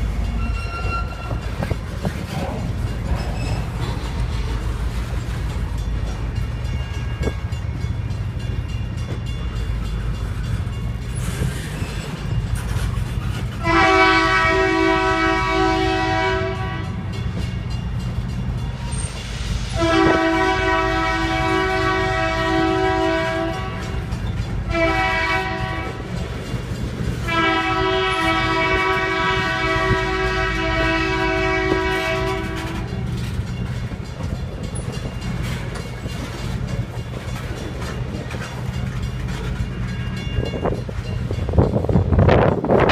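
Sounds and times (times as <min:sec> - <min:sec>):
train rumbling: 0:00.0 - 0:42.9
locomotive air horn blasts: 0:13.5 - 0:17.1, 0:19.8 - 0:24.1, 0:24.7 - 0:26.1, 0:27.2 - 0:33.0.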